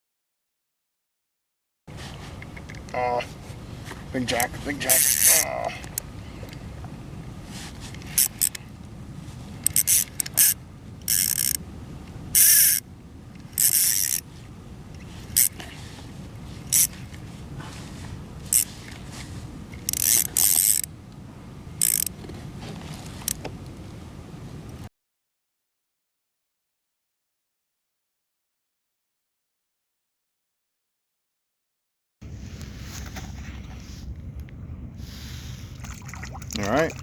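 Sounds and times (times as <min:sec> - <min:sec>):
fishing reel drag buzzing: 0:04.3 - 0:05.6, 0:08.0 - 0:08.6, 0:09.6 - 0:11.6, 0:12.3 - 0:12.8, 0:13.5 - 0:14.3, 0:15.0 - 0:15.6, 0:16.6 - 0:17.1, 0:18.5 - 0:18.9, 0:19.8 - 0:20.9, 0:21.8 - 0:22.1.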